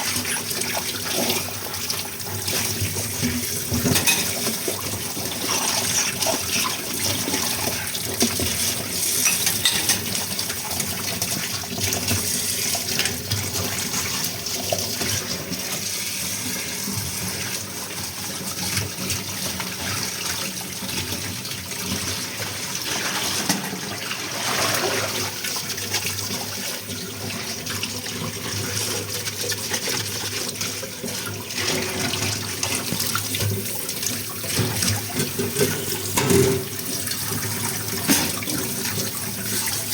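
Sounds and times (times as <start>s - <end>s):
tap water running into sink: 0.0s - 39.9s
dishes knocking and clinking: 3.7s - 4.4s, 9.2s - 10.1s, 34.6s - 36.8s, 37.9s - 38.8s.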